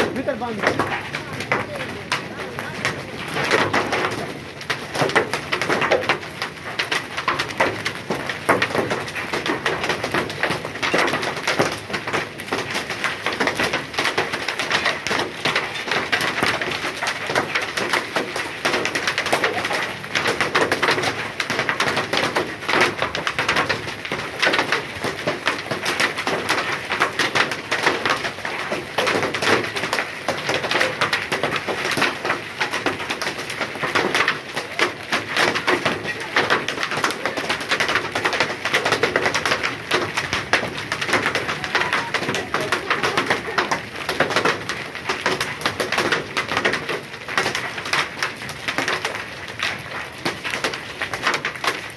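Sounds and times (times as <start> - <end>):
hailstones clattering: 0.0 - 51.9.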